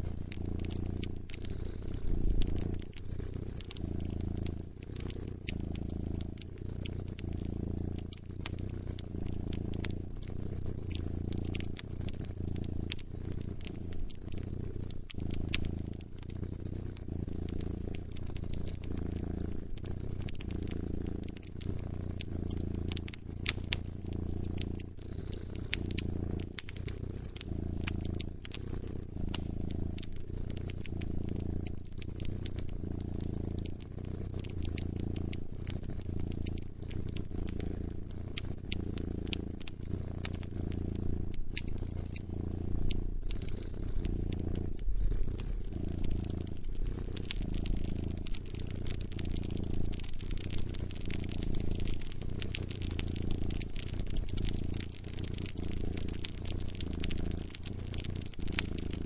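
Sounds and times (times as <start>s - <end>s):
cat purring: 0.0s - 59.0s
wood fire crackling: 0.0s - 59.0s.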